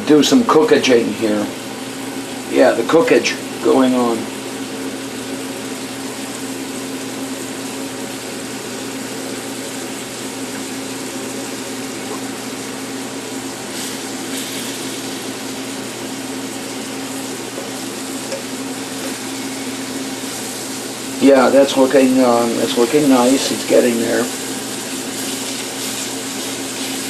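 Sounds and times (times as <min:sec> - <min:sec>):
fan humming: 0:00.0 - 0:27.0
liver sizzling in a frying pan: 0:01.5 - 0:27.0.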